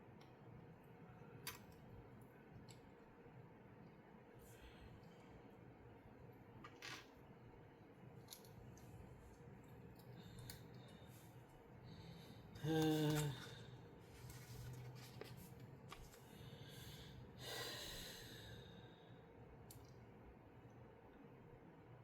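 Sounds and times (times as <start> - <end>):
breathy sigh: 11.9 - 13.8, 16.6 - 19.0
man humming mm: 12.6 - 13.7.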